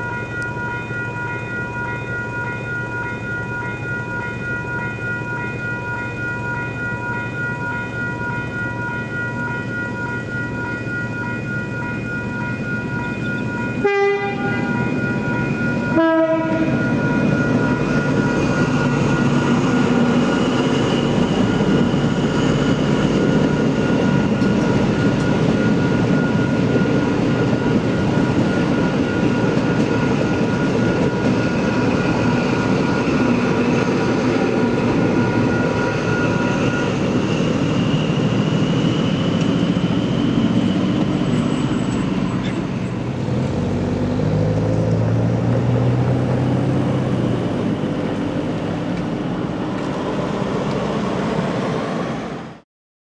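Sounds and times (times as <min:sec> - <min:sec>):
crossing bells ringing: 0:00.0 - 0:51.5
passenger train passing: 0:00.0 - 0:52.6
road vehicles driving: 0:00.0 - 0:52.6.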